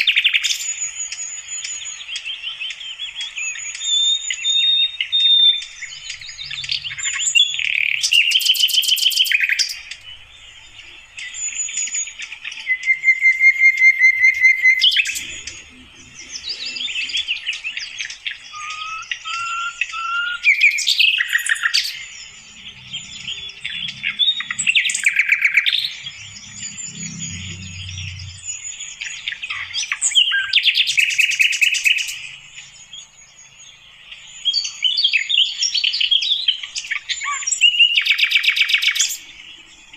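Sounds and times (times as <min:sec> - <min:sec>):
bird chirps and whistles: 0:00.0 - 0:10.1, 0:11.3 - 0:15.6, 0:16.2 - 0:32.4, 0:34.4 - 0:39.3
bird chattering trills: 0:03.2 - 0:32.7.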